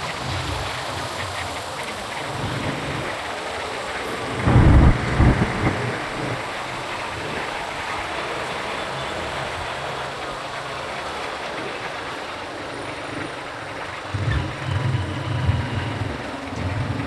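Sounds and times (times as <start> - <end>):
motorcycle engine hum: 1.3 - 7.3
wind and road noise: 2.0 - 8.2.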